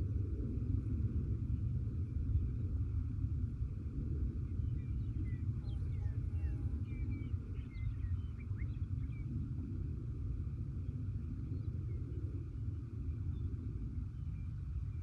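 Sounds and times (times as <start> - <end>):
low wind rumble on microphone: 0.0 - 15.0
faint birdsong chirps: 4.4 - 9.5, 10.8 - 15.0.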